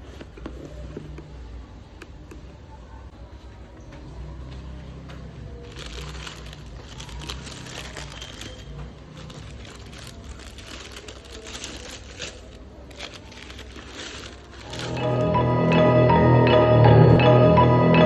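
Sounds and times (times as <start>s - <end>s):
paper packaging crinkling: 5.6s - 15.8s.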